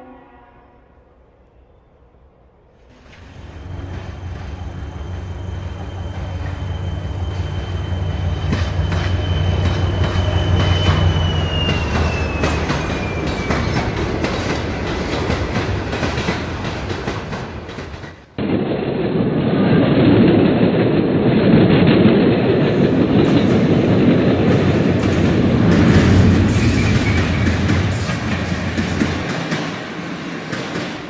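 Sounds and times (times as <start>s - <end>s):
dull train running noise: 3.0s - 18.3s, 20.6s - 31.0s
train wheels clacking on rail joints: 3.0s - 18.3s, 22.7s - 31.0s.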